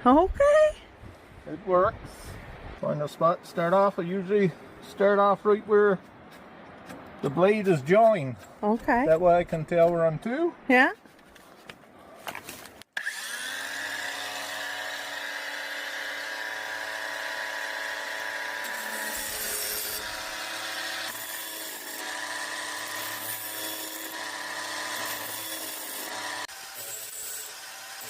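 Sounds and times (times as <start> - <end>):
battery grinder whining and grinding: 12.9 - 28.0.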